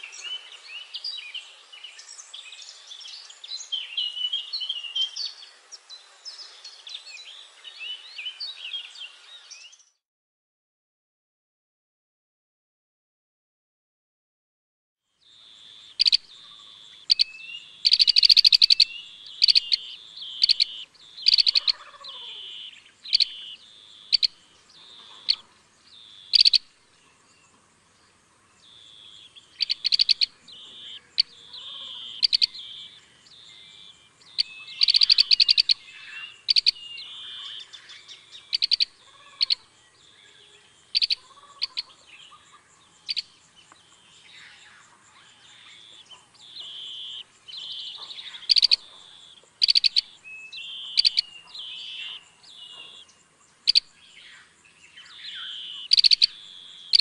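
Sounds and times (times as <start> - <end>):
background bird chirping: 0.0 - 10.0, 15.0 - 57.0
birds trilled chirps: 0.0 - 10.0, 15.1 - 57.0.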